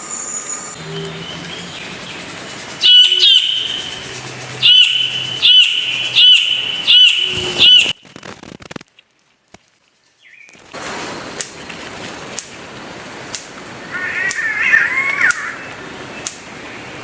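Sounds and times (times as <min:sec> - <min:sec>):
bird calling: 0:00.5 - 0:08.0, 0:13.8 - 0:16.4.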